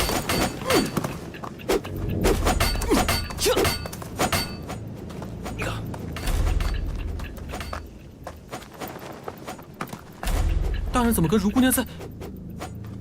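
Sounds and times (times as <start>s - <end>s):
sharp fight impacts: 0.0s - 1.2s, 2.2s - 4.8s.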